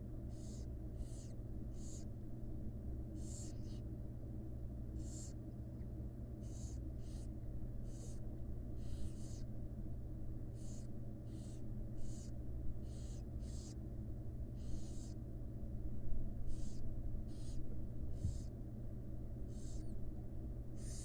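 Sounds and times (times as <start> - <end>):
steady low hum: 0.0 - 21.0
owl chicks hissing: 0.3 - 2.2, 3.1 - 3.9, 5.0 - 5.4, 6.4 - 9.5, 10.5 - 13.8, 14.6 - 15.2, 16.4 - 18.6, 19.4 - 20.0, 20.7 - 21.0.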